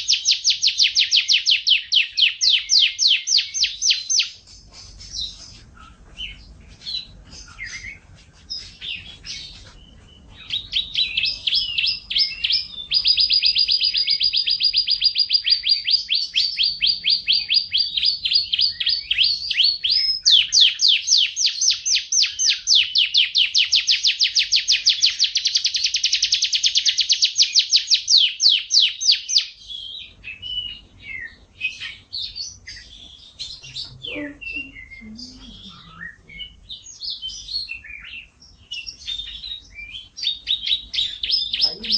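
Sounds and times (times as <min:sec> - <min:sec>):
songbird chirping and trilling: 0:00.0 - 0:41.9.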